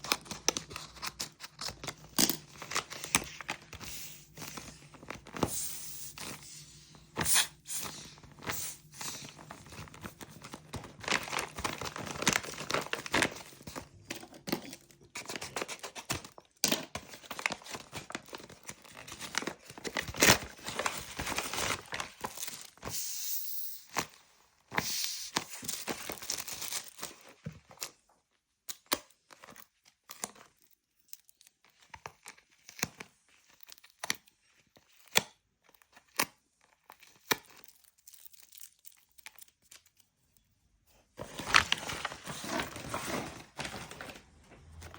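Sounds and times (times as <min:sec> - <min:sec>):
packaging torn and crinkled: 0:07.2 - 0:22.8, 0:24.9 - 0:28.0, 0:28.8 - 0:34.3, 0:35.9 - 0:40.1.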